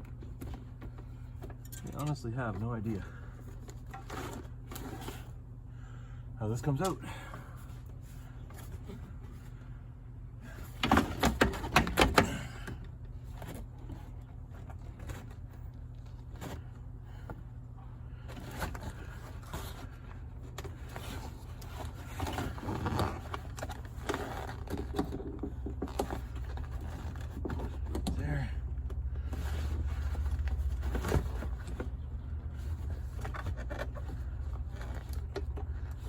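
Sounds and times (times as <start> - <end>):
steady low hum: 0.0 - 36.0
car part rattling and knocking: 10.6 - 12.6, 23.4 - 28.2.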